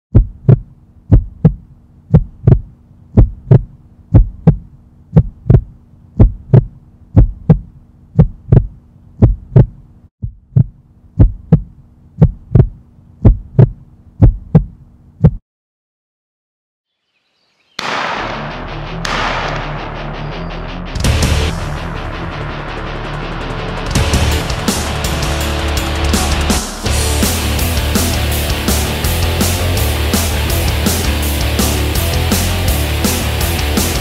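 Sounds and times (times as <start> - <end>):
heartbeat thumps: 0.1 - 15.4
steady low hum: 0.2 - 15.3
loud music: 17.8 - 34.0.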